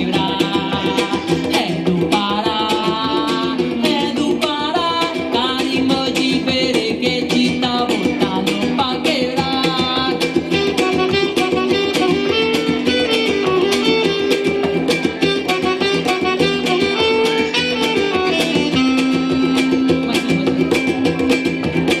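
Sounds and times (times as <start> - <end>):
plucked and strummed strings: 0.0 - 22.0
quick steady drum beat: 0.0 - 22.0
gliding melody line: 15.2 - 21.6.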